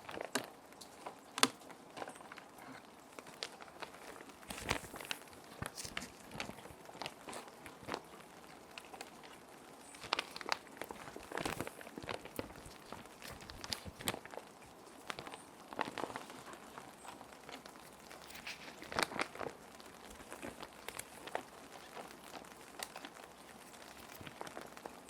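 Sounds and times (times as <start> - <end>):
plastic sheets crinkling: 0.0 - 25.0
rain hiss: 0.0 - 25.0.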